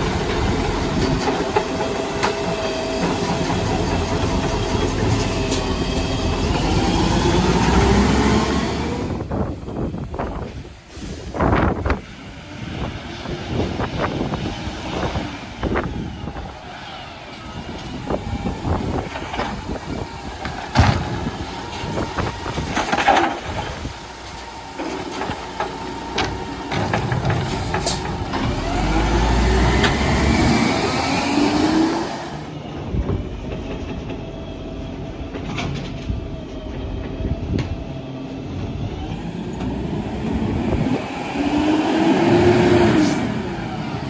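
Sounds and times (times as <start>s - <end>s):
garbage truck engine running: 0.0s - 44.0s
wind noise: 0.0s - 44.0s
air brake hiss: 10.9s - 11.5s
knocks and clanks: 17.6s - 29.0s
rising whine: 38.6s - 44.0s.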